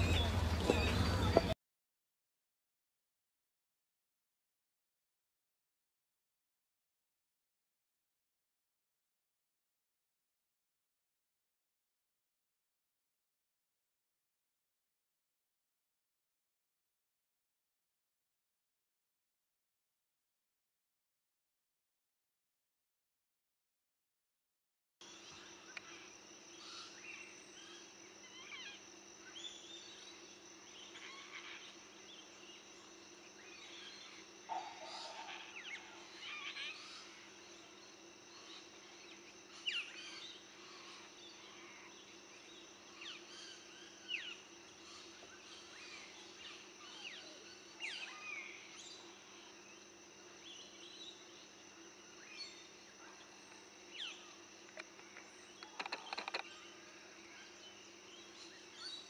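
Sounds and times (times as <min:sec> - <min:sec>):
birds chirping and whistling: 0:00.0 - 0:01.6
faint outdoor hum: 0:00.0 - 0:01.6, 0:25.0 - 0:59.0.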